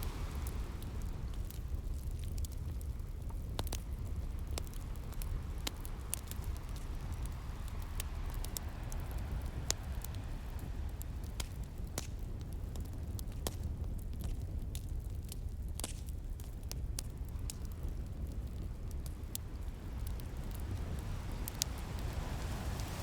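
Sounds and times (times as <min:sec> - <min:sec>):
sea waves: 0:00.0 - 0:01.4, 0:06.5 - 0:11.0, 0:20.0 - 0:23.0
wood fire crackling and popping: 0:00.0 - 0:23.0.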